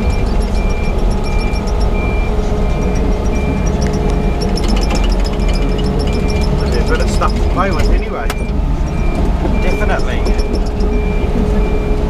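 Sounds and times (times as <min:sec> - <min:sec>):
diesel engine running: 0:00.0 - 0:12.0
travel alarm beeping: 0:00.0 - 0:12.0
metallic clatter: 0:02.8 - 0:11.0.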